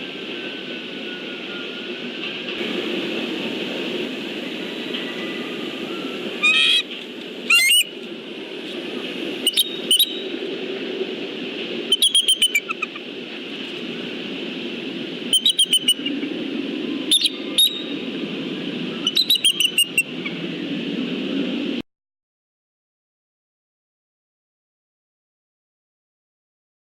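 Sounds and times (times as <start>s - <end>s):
steady background hum: 0.0s - 21.8s
eagles chittering calls: 6.4s - 6.9s, 7.5s - 7.9s, 11.9s - 13.1s, 15.3s - 16.2s.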